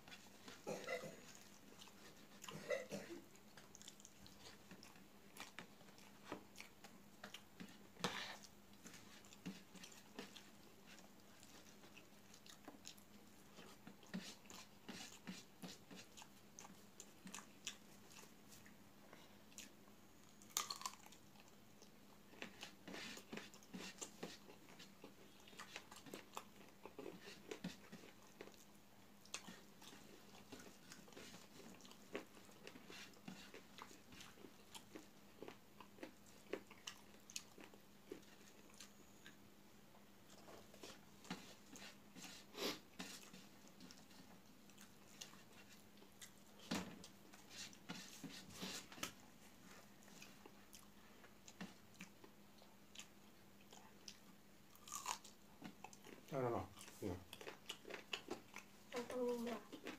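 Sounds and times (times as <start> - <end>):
faint steady hum: 0.0 - 59.9
person chewing with mouth clicks: 3.4 - 39.4, 48.6 - 58.8.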